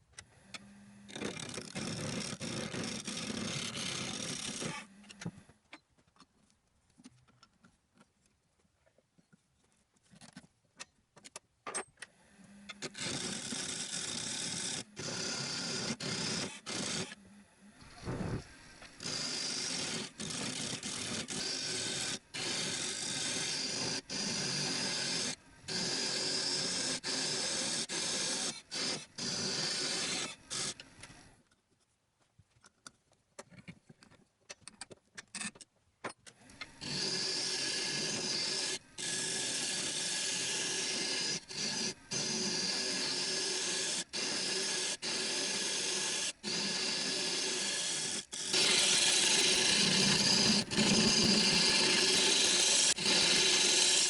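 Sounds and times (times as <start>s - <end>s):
wood lathe cutting hiss: 18.0s - 30.8s, 36.8s - 54.0s.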